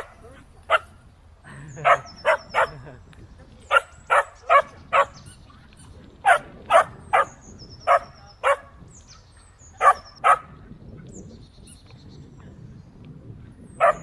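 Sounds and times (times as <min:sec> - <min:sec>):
low outdoor background: 0:00.0 - 0:14.0
dog barking: 0:01.8 - 0:02.8, 0:03.7 - 0:05.2, 0:06.2 - 0:08.7, 0:09.8 - 0:10.5, 0:13.8 - 0:14.0.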